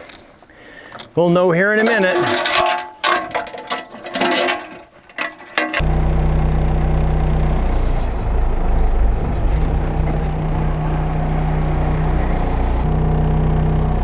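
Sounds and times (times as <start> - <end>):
diesel engine running hard: 5.8 - 14.0.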